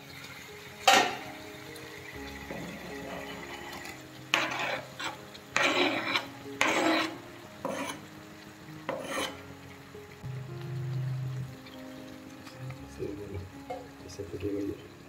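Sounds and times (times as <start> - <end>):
chicken frying in oil: 0.0 - 15.0
tomatoes scraped into hot pan: 3.2 - 8.1, 8.9 - 9.4.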